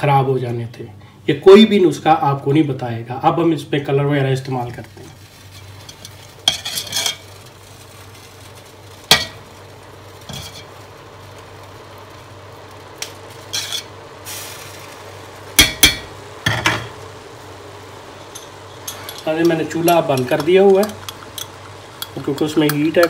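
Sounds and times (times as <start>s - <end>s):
metal spoon scraping pot: 5.6s - 7.2s, 13.5s - 13.9s.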